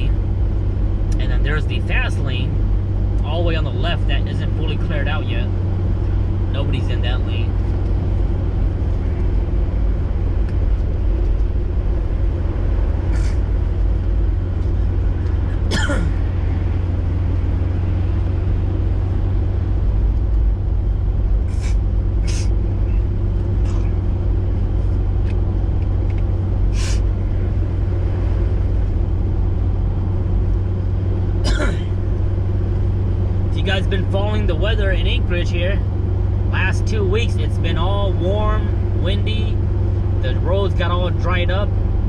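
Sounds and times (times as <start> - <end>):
car engine and tyre drone: 0.0 - 42.0.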